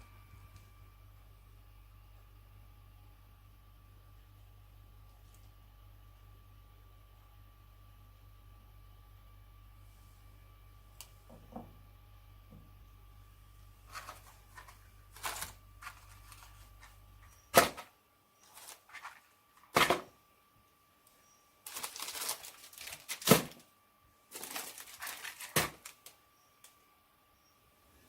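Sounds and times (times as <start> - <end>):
low background hum: 0.0 - 28.0
rustling: 13.7 - 20.1, 21.6 - 23.6, 24.2 - 26.2.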